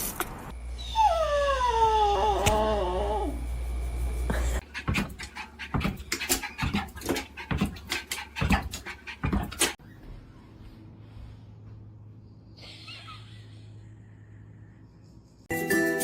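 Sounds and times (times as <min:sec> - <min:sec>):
steady low hum: 0:00.5 - 0:09.0
dog panting: 0:04.6 - 0:09.8.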